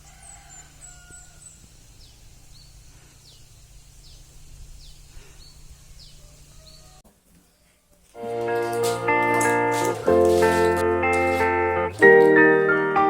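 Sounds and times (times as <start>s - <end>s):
birds chirping: 0.0s - 7.8s.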